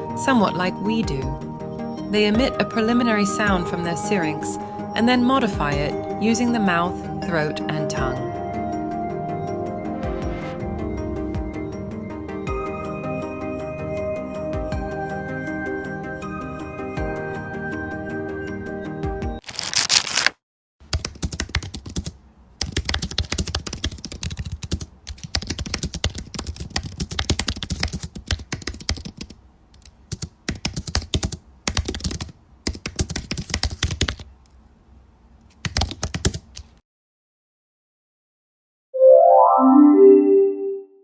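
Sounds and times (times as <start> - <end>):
brief whoosh: 9.7 - 12.4.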